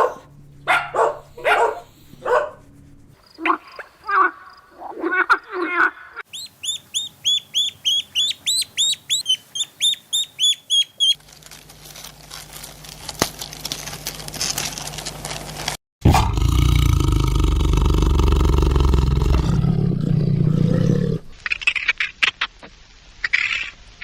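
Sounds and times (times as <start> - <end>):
dog barking: 0.0 - 2.6
bird chirping rapidly: 6.3 - 11.2
rustling noise: 11.0 - 15.8.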